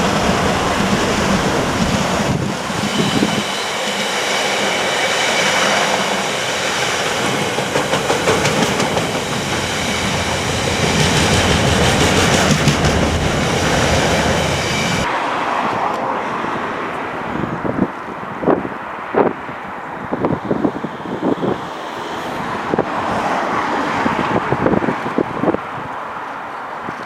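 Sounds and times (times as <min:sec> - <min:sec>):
high ringing from wheels and rails: 0:00.0 - 0:15.1
train wheels clattering over track: 0:00.0 - 0:15.1.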